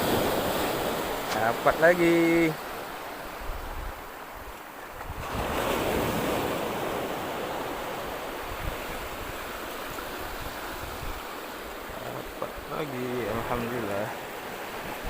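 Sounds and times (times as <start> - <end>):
sea waves washing onto beach: 0.0 - 15.0
wind on the microphone: 3.3 - 13.7.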